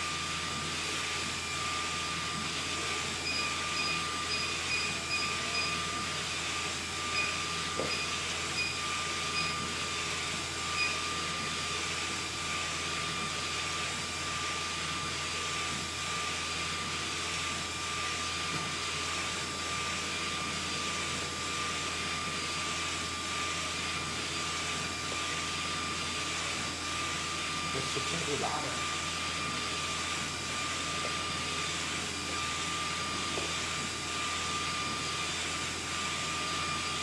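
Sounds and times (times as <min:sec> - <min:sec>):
high steady whine: 0:27.3 - 0:37.0.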